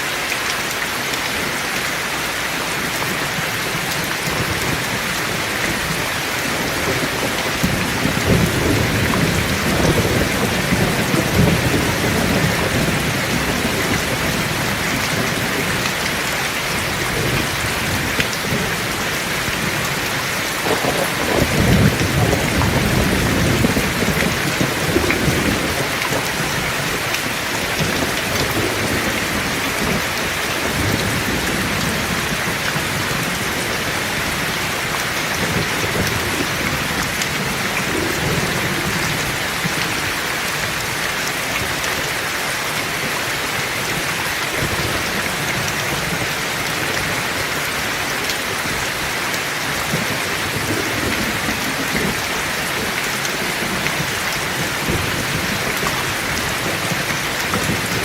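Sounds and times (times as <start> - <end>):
heavy rain: 0.0 - 58.0
thunder rolling: 4.2 - 39.9, 49.8 - 58.0.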